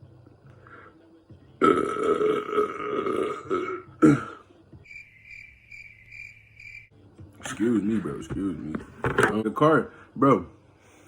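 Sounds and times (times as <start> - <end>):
man belching: 1.6 - 4.4
faint pulsing high chirp: 4.8 - 6.9.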